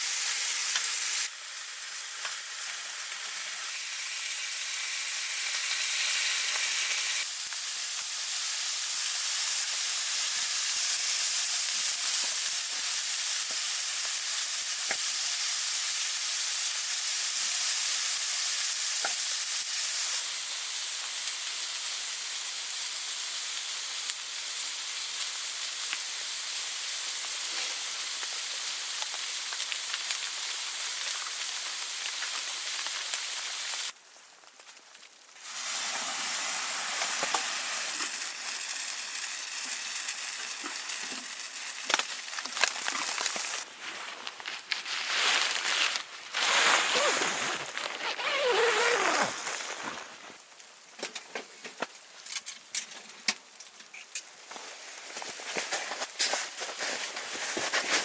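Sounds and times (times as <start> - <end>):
food sizzling in a pan: 0.0 - 58.0
small pops and crackles: 27.2 - 35.4, 37.0 - 43.6.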